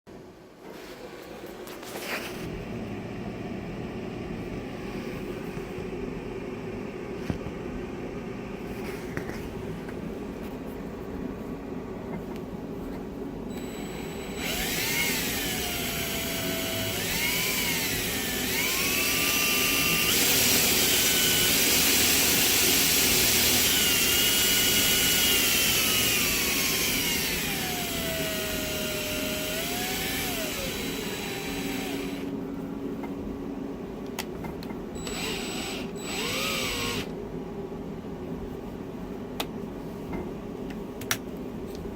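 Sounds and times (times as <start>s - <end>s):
motor whine: 13.5s - 32.4s, 35.0s - 37.2s.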